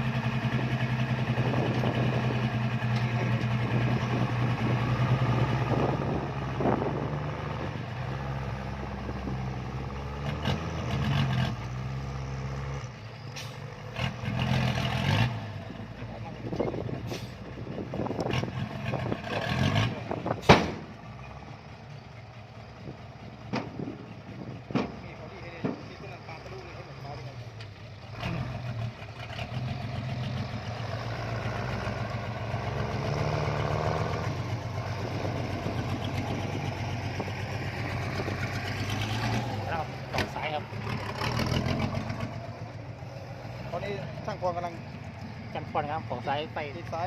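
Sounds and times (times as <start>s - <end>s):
tractor diesel engine running: 0.0s - 47.0s
sharp loud knock: 20.5s - 20.8s
knocks and clatter: 23.4s - 24.0s, 24.7s - 26.0s.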